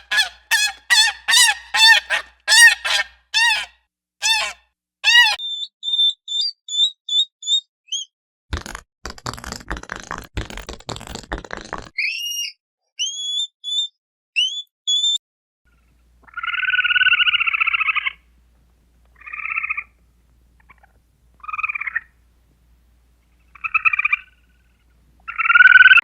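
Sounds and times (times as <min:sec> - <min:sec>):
trilled pulsing animal calls: 0:00.0 - 0:05.4.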